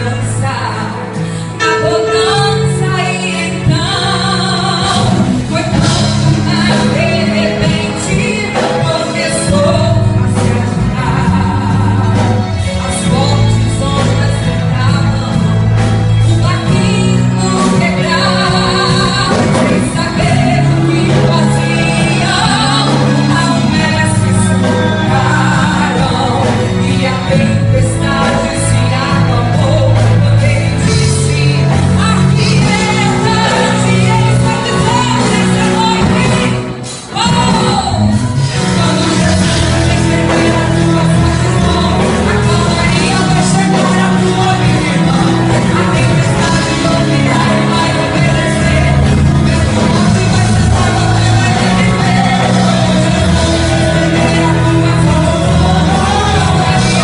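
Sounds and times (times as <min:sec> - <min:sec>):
instrumental accompaniment with bass: 0:00.0 - 0:57.0
woman singing gospel with band: 0:00.0 - 0:57.0.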